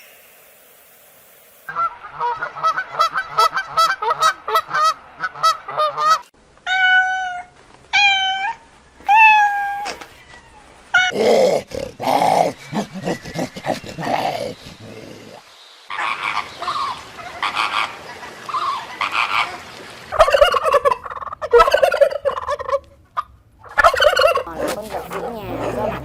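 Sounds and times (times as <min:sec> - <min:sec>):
cat meowing: 0:06.7 - 0:10.5.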